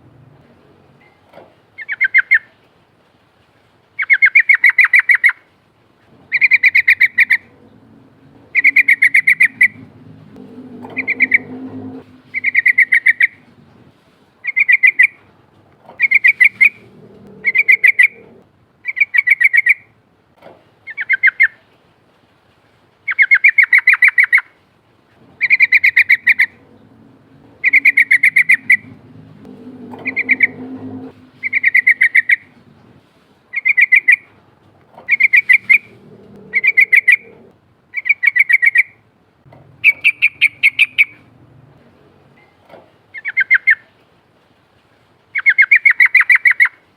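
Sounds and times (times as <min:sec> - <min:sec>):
bulbul singing: 0:06.3 - 0:13.5, 0:25.4 - 0:32.6.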